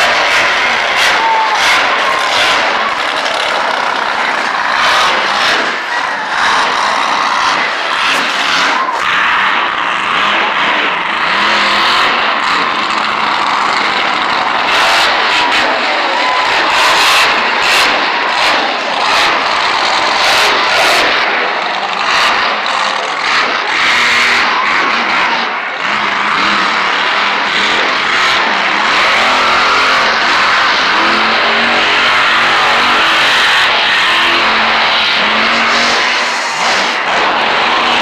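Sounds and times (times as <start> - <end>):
monster truck engines revving: 0.0 - 38.0.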